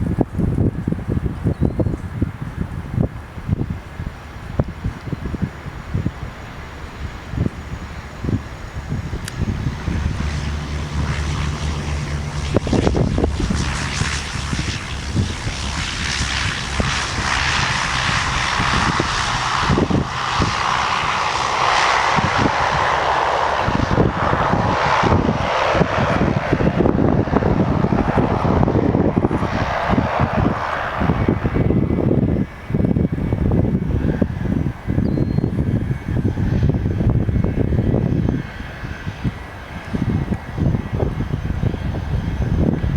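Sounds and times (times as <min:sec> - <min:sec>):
jet aircraft engines roaring: 0:00.0 - 0:42.9
wind buffeting microphone: 0:00.0 - 0:42.9.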